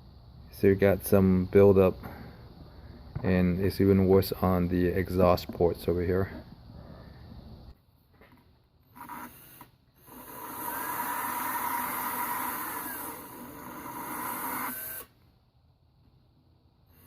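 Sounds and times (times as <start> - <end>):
handheld power tool motor: 8.8 - 15.2.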